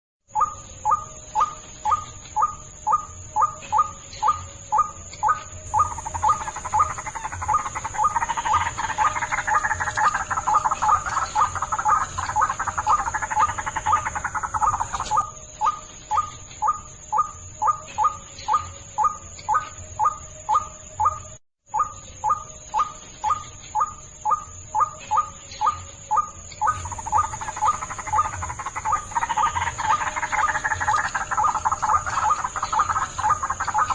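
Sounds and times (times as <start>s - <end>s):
steady high-pitched tone: 5.6s - 15.2s
waterhen calls: 5.7s - 15.3s, 26.6s - 33.9s.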